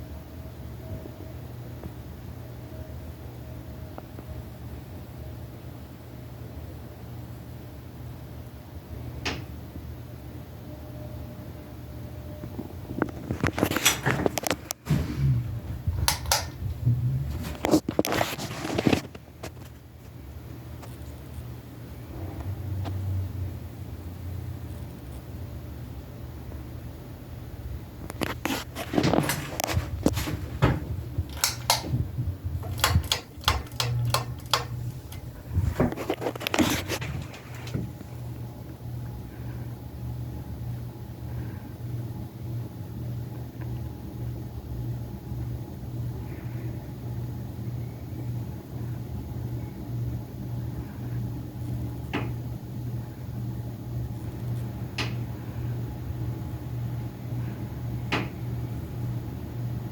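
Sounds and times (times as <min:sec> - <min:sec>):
ceiling fan motor humming: 0:00.0 - 0:59.9
sharp click: 0:16.0 - 0:16.6, 0:31.3 - 0:31.9, 0:32.6 - 0:35.2
clicks and knocks: 0:16.0 - 0:16.8, 0:29.0 - 0:37.9.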